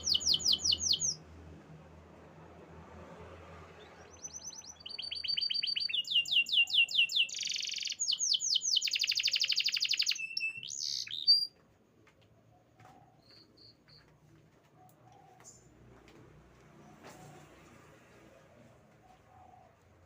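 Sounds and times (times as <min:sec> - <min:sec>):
canary singing trills: 0:00.0 - 0:01.2, 0:03.8 - 0:11.6
faint chirps: 0:04.0 - 0:11.6, 0:12.5 - 0:15.7.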